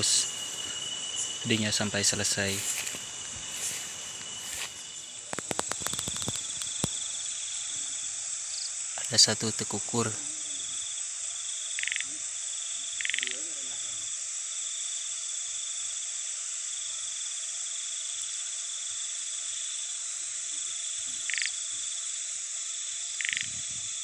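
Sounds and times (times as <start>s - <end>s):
frog pulsed calls: 0.0s - 8.8s, 11.7s - 13.6s, 21.2s - 21.6s, 23.1s - 23.7s
insects trilling: 0.0s - 24.0s.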